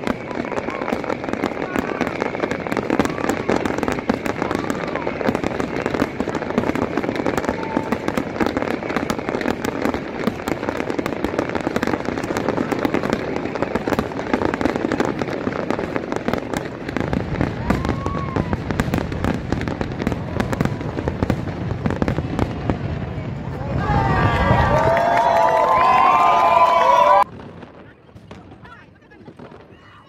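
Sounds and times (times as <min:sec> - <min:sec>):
firework whistle: 0:00.0 - 0:21.4
low firework booms: 0:00.0 - 0:24.9, 0:27.2 - 0:30.0
fireworks bangs and crackles: 0:00.0 - 0:30.0.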